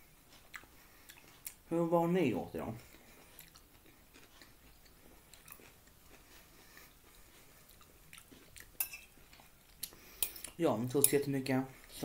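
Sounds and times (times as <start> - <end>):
faint chewing: 0.0 - 1.7, 2.7 - 10.6.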